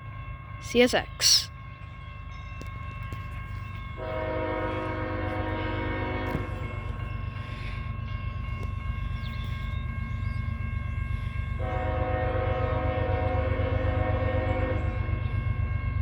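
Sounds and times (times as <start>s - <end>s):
diesel locomotive engine rumble: 0.0s - 16.0s
train horn: 4.0s - 7.1s, 11.6s - 15.4s.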